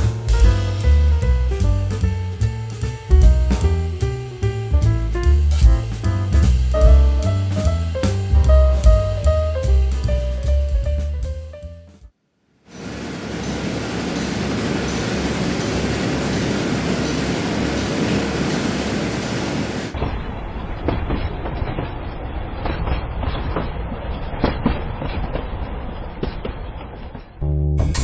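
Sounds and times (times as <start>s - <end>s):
railway cars rolling on track: 12.8s - 20.0s.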